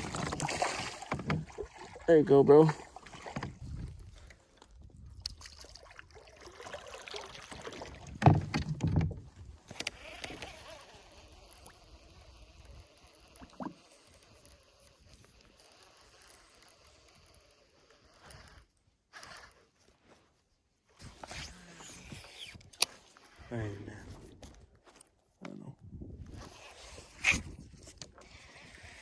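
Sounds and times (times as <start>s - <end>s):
water sloshing: 0.0s - 14.6s
small handling noises: 8.2s - 29.0s.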